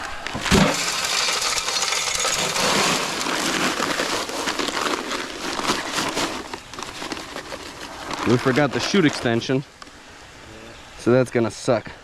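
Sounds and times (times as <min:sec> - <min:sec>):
concrete mix pouring hiss: 0:00.3 - 0:09.6.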